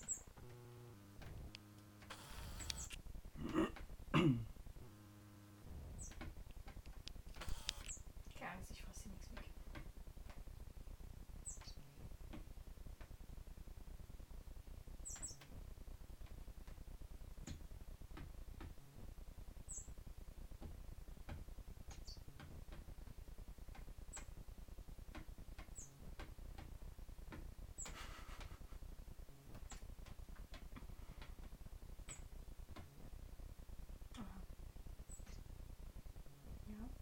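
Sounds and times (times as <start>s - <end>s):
blackbird high chirps: 0.0s - 0.3s, 11.4s - 11.9s, 15.0s - 15.4s, 19.7s - 20.0s
faint ticks and taps: 6.0s - 8.0s, 9.0s - 10.7s, 11.4s - 13.4s, 15.0s - 36.8s.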